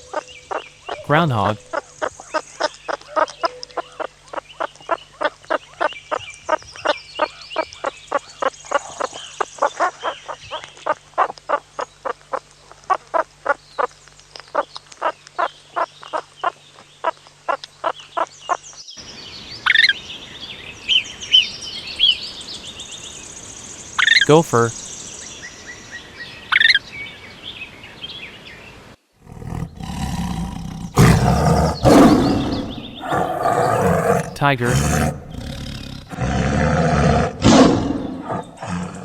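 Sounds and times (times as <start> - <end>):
groundhog calling: 29.2 - 39.0.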